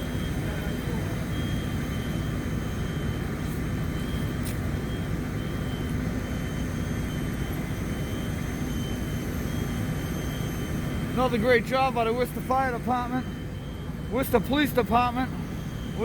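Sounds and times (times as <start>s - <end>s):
faint high beeps: 0.0s - 16.0s
fire engine rumbling: 0.0s - 16.0s.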